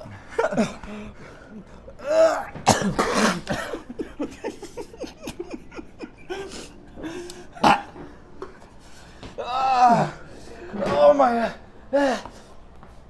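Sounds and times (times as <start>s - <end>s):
man coughing hard: 0.0s - 1.2s, 2.0s - 8.1s.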